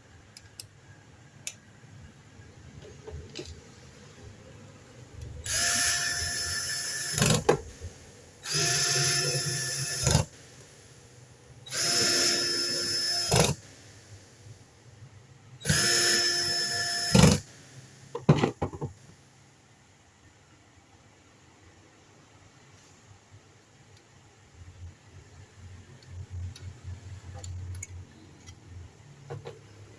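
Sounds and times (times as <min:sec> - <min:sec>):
power tool motor whirring: 0:05.5 - 0:07.5, 0:08.4 - 0:10.3, 0:11.7 - 0:13.6, 0:15.6 - 0:17.5.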